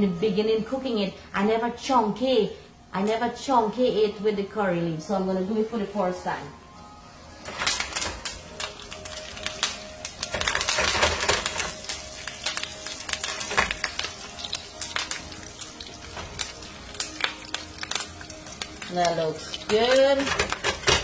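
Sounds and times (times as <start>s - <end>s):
spices crackling in hot oil: 7.3s - 21.0s.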